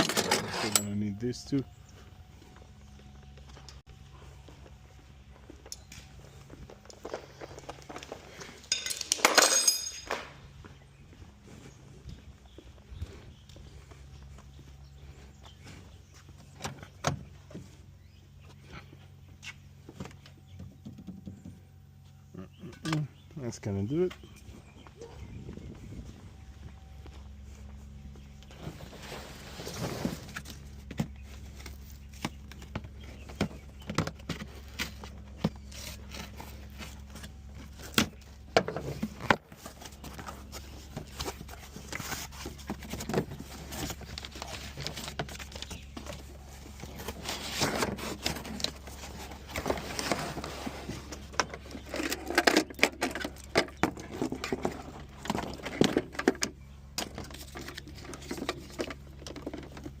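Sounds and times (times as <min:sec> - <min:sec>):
hand tools and metal clinking: 0:00.0 - 0:03.8, 0:05.4 - 0:11.3
steady low hum: 0:00.0 - 1:00.0.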